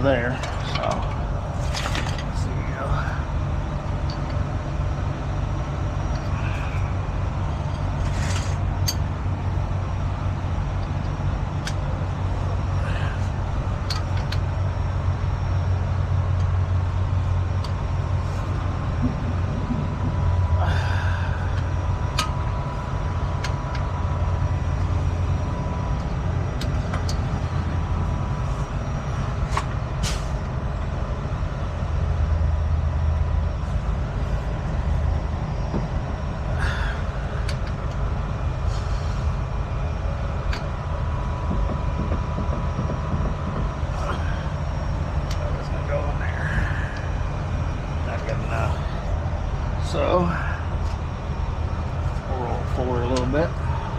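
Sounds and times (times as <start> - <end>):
truck diesel engine idling: 0.0 - 53.9
clicks and knocks: 41.5 - 43.9.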